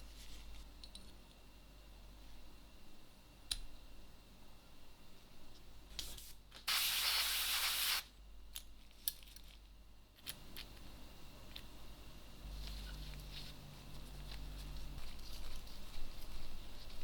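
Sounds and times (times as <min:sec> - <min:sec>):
spray can hiss: 0:06.7 - 0:08.1.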